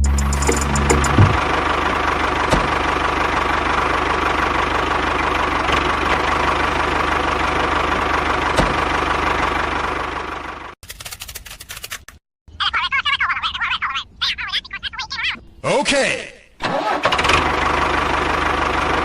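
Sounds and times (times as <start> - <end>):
small tractor engine running: 0.0 - 10.8, 16.6 - 19.0.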